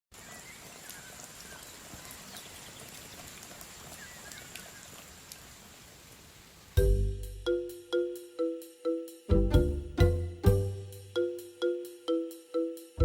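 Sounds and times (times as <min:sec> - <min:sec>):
steady forest hiss: 0:00.1 - 0:13.0
faint bird chirps: 0:00.2 - 0:05.5.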